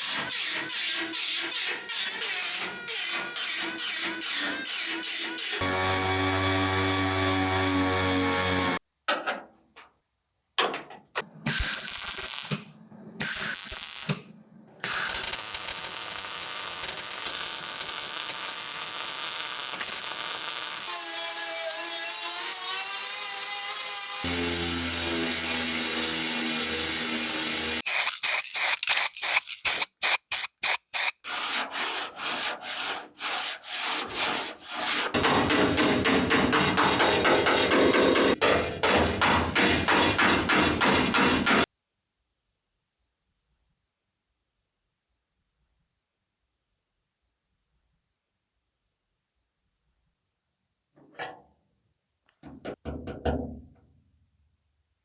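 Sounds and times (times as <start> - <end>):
power tool running: 0.0 - 8.8, 19.0 - 28.1
tool striking metal: 35.2 - 41.7.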